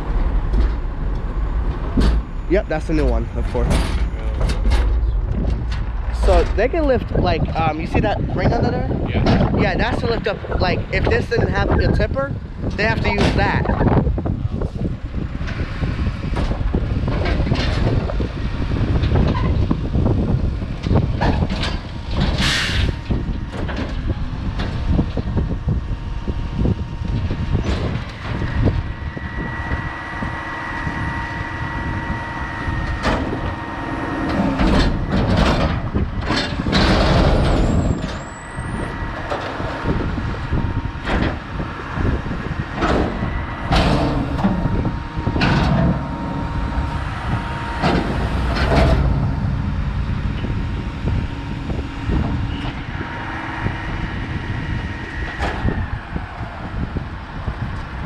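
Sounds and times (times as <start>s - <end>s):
metal knocks and clanks: 0.0s - 11.2s, 32.9s - 55.9s
diesel truck engine running: 0.0s - 58.0s
faint whine: 0.0s - 58.0s
high squeal: 25.9s - 35.3s, 36.6s - 57.3s.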